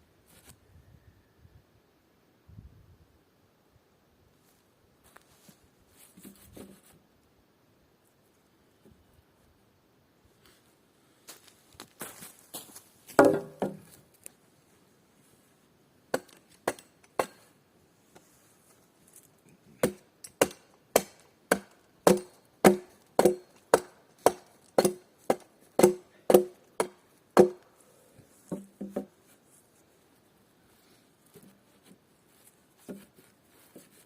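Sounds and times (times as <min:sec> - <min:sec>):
tool striking wood: 0:13.2 - 0:13.9, 0:16.1 - 0:17.4, 0:19.8 - 0:27.6.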